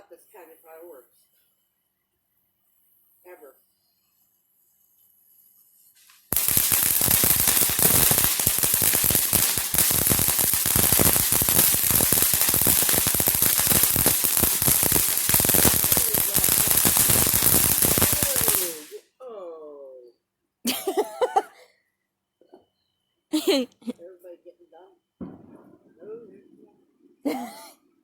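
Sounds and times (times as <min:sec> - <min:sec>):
firecrackers rapid popping: 0:06.3 - 0:19.0, 0:25.2 - 0:26.0.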